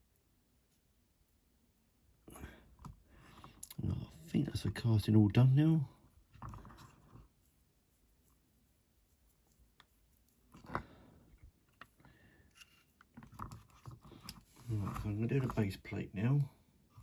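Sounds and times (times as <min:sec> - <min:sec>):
small parts clicking and knocking: 0:09.7 - 0:15.6.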